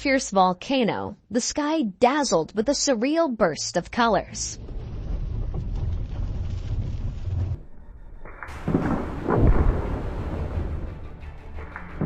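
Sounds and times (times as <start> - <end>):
low rumbling: 4.2 - 12.0
heavy deep booms: 4.6 - 11.2.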